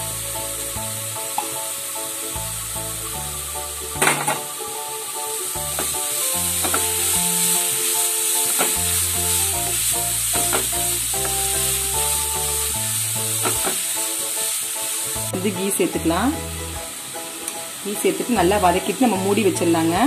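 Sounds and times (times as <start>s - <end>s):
background music with held notes: 0.0s - 20.0s
carrot sizzling in a pan: 0.0s - 20.0s
wooden spatula scraping and knocking: 6.6s - 7.0s.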